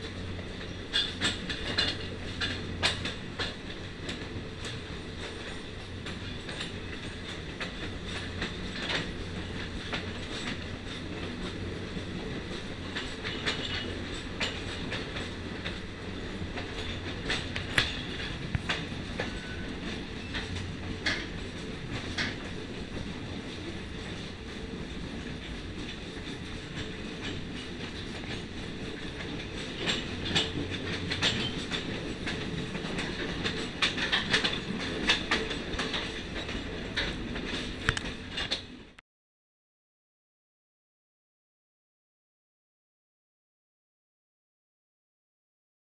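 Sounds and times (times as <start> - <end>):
train wheels rumbling on rail: 0.0 - 39.0
clicks over rail joints: 0.6 - 11.6, 12.3 - 24.2, 25.2 - 38.8.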